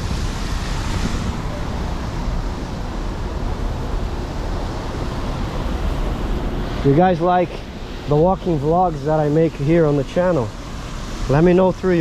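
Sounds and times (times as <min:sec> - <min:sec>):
passing vehicles rumble: 0:00.0 - 0:12.0
tyre hiss on wet street: 0:00.0 - 0:12.0.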